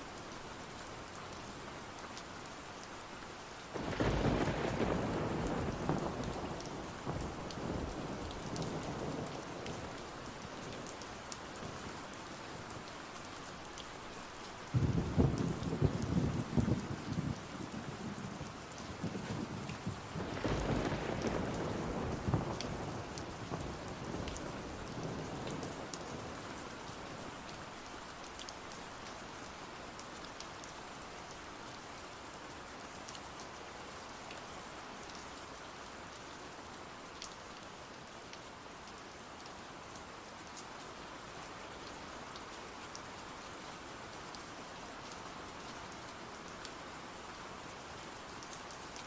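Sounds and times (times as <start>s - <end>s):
steady rain: 0.0s - 49.0s
thunder rumbling: 3.8s - 9.4s, 14.8s - 26.3s.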